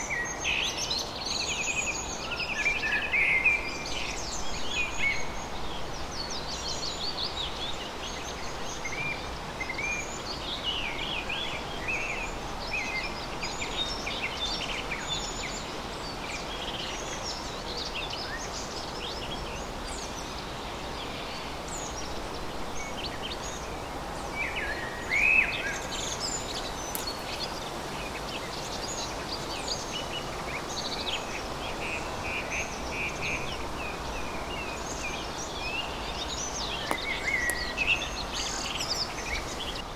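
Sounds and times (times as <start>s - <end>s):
steady background hiss: 18.8s - 39.9s
birds chirping and singing: 25.2s - 29.0s, 35.9s - 39.8s.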